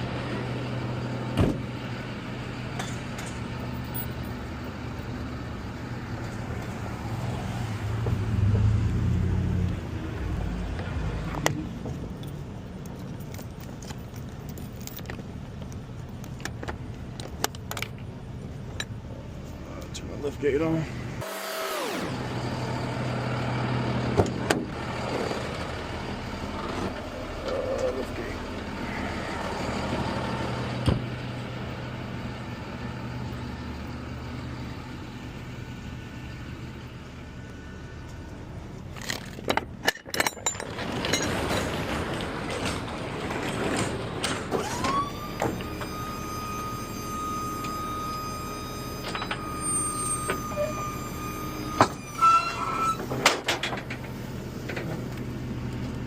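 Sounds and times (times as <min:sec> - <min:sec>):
truck engine idling: 0:00.0 - 0:09.1, 0:21.8 - 0:56.0
hydraulic pump whine: 0:20.9 - 0:38.0, 0:39.0 - 0:56.0
metal clanks: 0:38.9 - 0:44.8.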